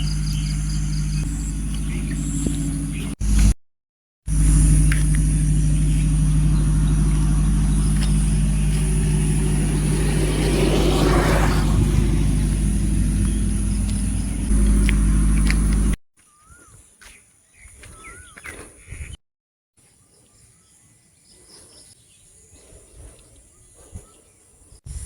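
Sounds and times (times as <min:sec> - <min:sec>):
vehicle engine humming: 0:00.0 - 0:03.6, 0:04.3 - 0:16.0.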